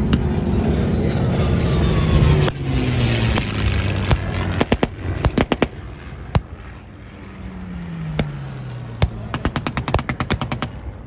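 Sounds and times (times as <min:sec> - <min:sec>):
engine passing by: 0:00.0 - 0:11.0
blank gunshots: 0:03.4 - 0:05.8, 0:08.2 - 0:11.0.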